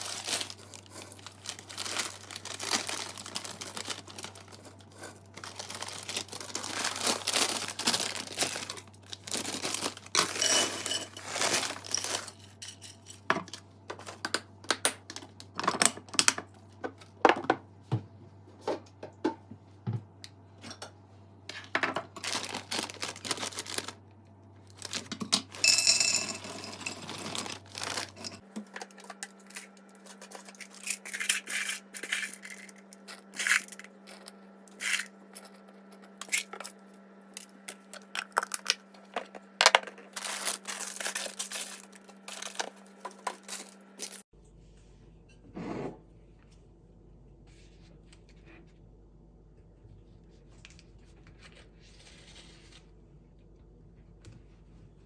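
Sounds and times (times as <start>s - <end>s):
crinkling and rustling: 0.0s - 12.6s, 21.9s - 24.0s, 24.7s - 36.7s, 37.4s - 44.3s.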